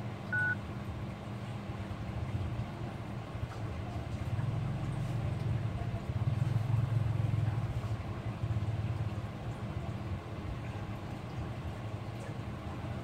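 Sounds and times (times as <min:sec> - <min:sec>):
vehicle engine rumble: 0:01.4 - 0:11.8.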